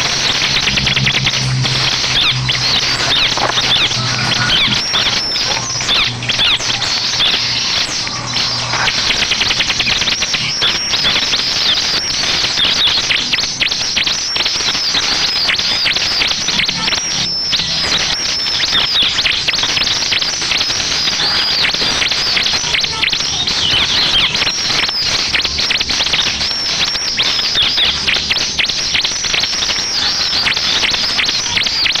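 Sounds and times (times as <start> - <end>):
bird song rapid high chirps: 0.0 - 32.0.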